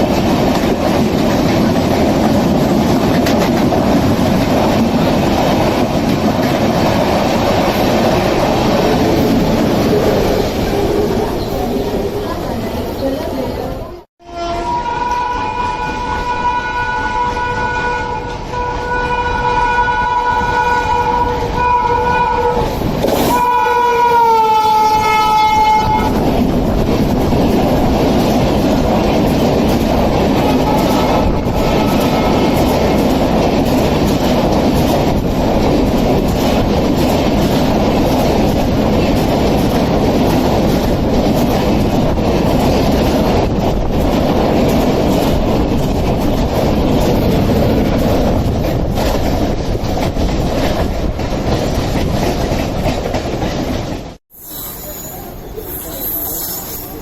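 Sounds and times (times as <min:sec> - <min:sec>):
train wheels clattering: 0:00.0 - 0:11.4, 0:22.6 - 0:54.2
locomotive horn: 0:14.2 - 0:26.2, 0:30.4 - 0:32.7.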